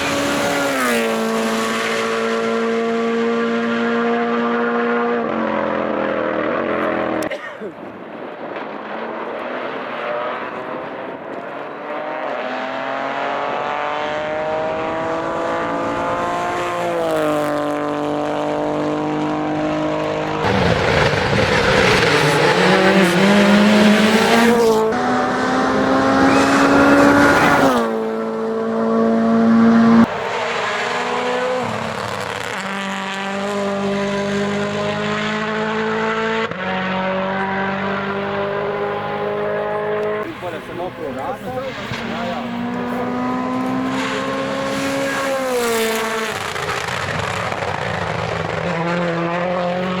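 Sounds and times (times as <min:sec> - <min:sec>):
rally car engines revving: 0:00.0 - 0:50.0.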